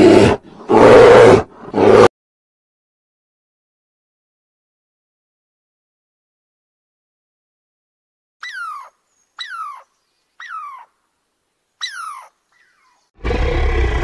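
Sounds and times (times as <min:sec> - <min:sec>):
squirrel chirping: 0:08.4 - 0:10.9, 0:11.8 - 0:13.1
deep roar sound effect: 0:13.2 - 0:14.0.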